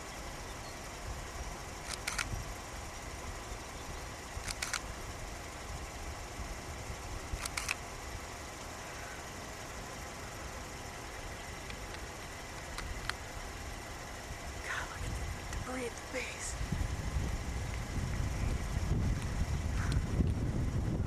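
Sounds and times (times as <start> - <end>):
car engine idling: 0.0 - 21.0
sharp clicks: 1.8 - 2.4, 4.4 - 4.9, 7.3 - 7.9, 11.5 - 12.1, 12.7 - 13.2.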